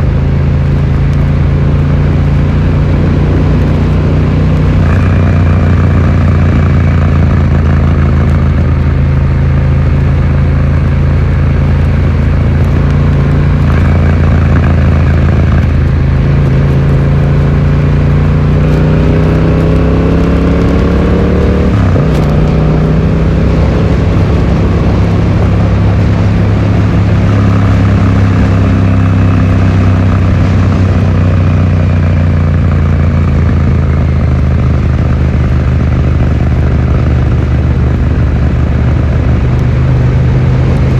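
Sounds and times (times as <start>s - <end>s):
motorcycle engine while riding: 0.0s - 40.9s.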